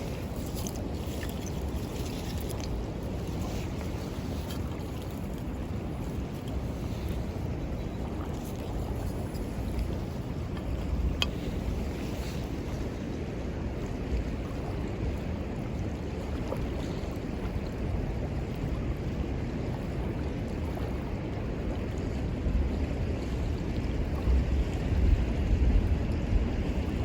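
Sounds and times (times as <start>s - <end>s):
river water rushing: 0.0s - 13.2s
wind buffeting microphone: 0.0s - 27.0s.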